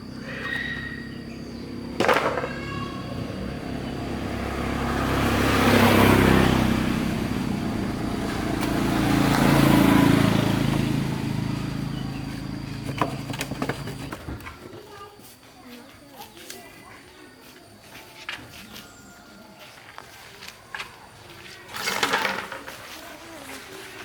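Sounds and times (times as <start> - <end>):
vehicle engine running: 0.0 - 14.4.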